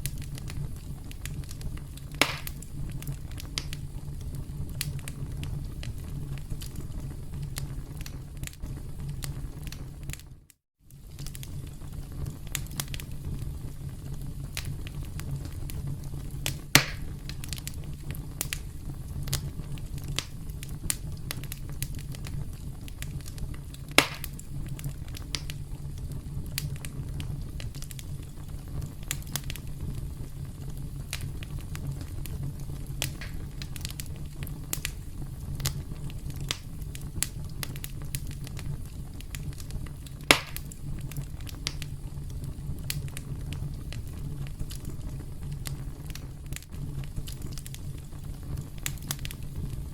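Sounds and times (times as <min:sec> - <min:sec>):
fire snapping and popping: 0:00.0 - 0:49.9
low rumble of fire: 0:00.0 - 0:49.9.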